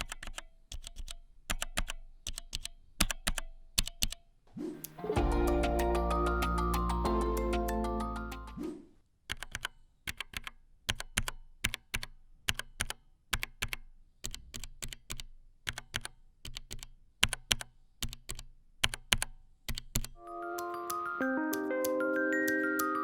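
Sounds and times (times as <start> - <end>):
mechanical keyboard typing: 0.0 - 4.2, 9.3 - 23.0.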